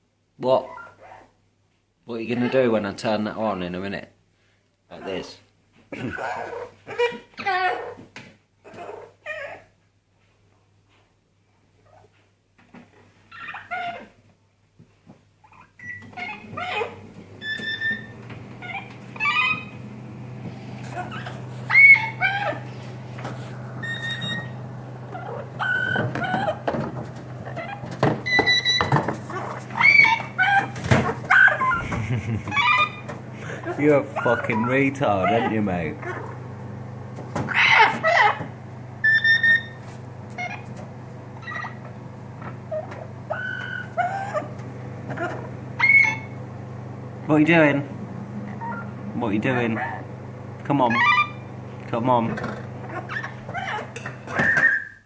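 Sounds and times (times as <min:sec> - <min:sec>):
parrot squawking and whistling: 0:15.6 - 0:19.8, 0:20.9 - 0:22.6, 0:23.8 - 0:26.7, 0:27.4 - 0:30.7, 0:31.3 - 0:31.9, 0:32.5 - 0:36.3, 0:37.5 - 0:38.4, 0:39.0 - 0:39.8, 0:40.4 - 0:40.7, 0:41.4 - 0:41.8, 0:42.7 - 0:44.5, 0:45.1 - 0:46.4, 0:48.6 - 0:48.9, 0:50.9 - 0:51.5, 0:52.8 - 0:55.0
low hum: 0:16.2 - 0:34.2.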